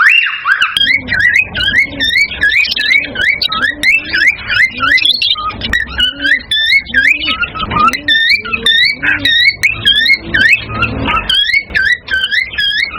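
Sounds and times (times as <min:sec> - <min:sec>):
cockatiels chirping: 0:00.0 - 0:12.9
lower arching tone: 0:00.8 - 0:12.9.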